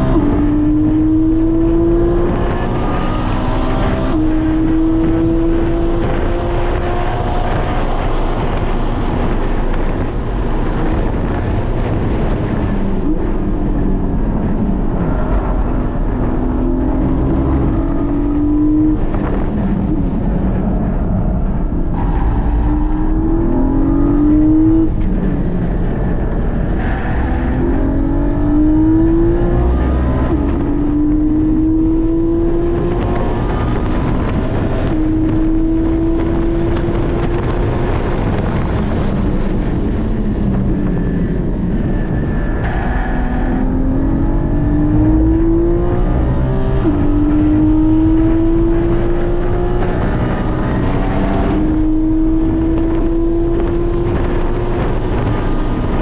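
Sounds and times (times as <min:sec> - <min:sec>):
racing car engine revving: 0:00.0 - 0:56.0
tyre and wind noise: 0:00.0 - 0:56.0.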